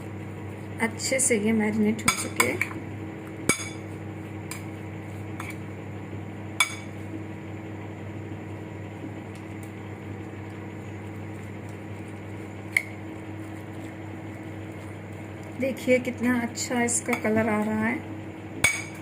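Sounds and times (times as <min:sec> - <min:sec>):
oven humming: 0:00.0 - 0:19.0
vegetables being stirred: 0:09.4 - 0:18.0.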